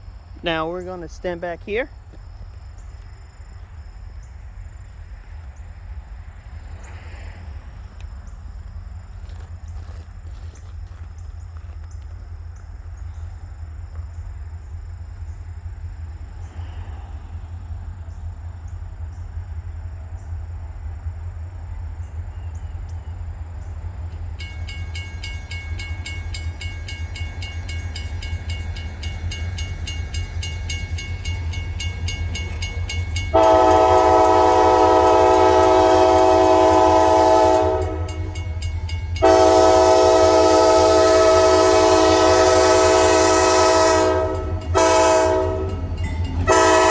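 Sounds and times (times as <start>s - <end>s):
locomotive engine rumble: 0.0s - 46.9s
crossing warning bell ringing: 24.1s - 46.9s
locomotive horn blast: 31.2s - 46.9s.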